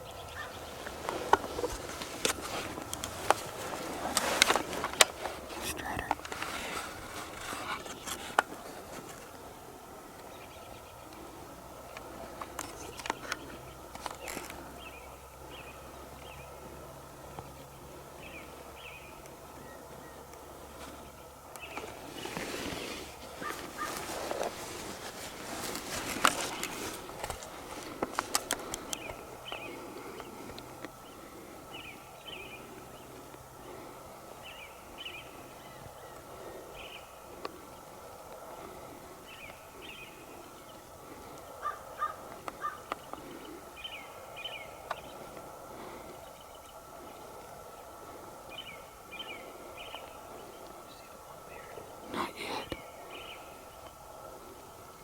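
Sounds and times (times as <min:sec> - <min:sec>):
bird calls: 0:00.0 - 0:55.0
faint songbird chirps: 0:00.0 - 0:55.0
small birds twittering: 0:00.0 - 0:55.0
rustling and handling noise: 0:00.7 - 0:09.6, 0:11.9 - 0:14.7, 0:21.6 - 0:31.0.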